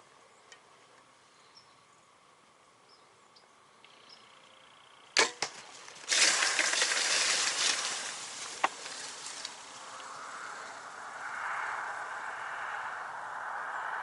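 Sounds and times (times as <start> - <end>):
arrow striking: 5.2 - 7.8
crashing through dry leaves: 5.2 - 11.0.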